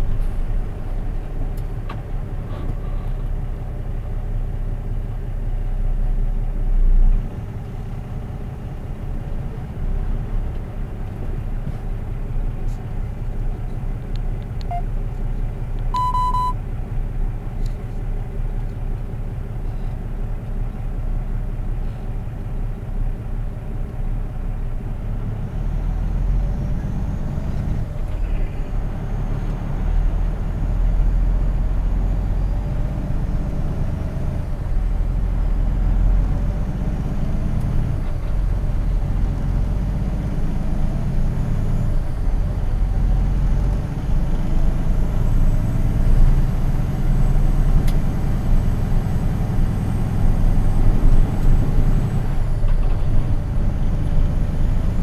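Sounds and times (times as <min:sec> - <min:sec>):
vehicle engine idling and pulling away: 0:00.0 - 0:55.0
short electronic beep: 0:14.7 - 0:14.9, 0:15.9 - 0:16.6.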